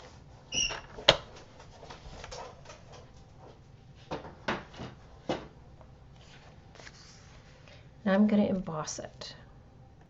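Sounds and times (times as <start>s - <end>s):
paper rustling: 6.2s - 7.7s.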